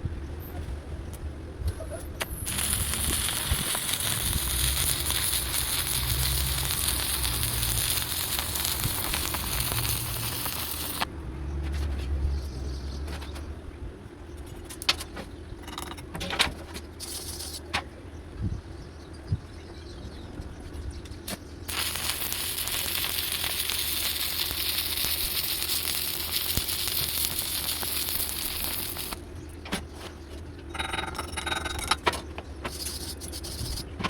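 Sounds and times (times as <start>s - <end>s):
welding arc crackling: 2.2s - 11.1s, 21.7s - 29.2s.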